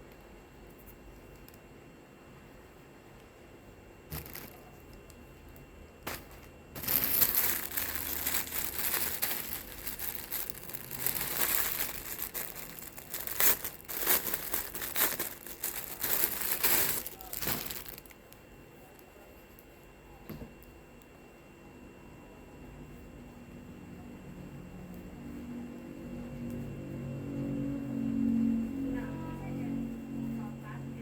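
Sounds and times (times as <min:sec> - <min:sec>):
plastic packaging crinkling: 0:04.1 - 0:05.2, 0:06.1 - 0:19.0.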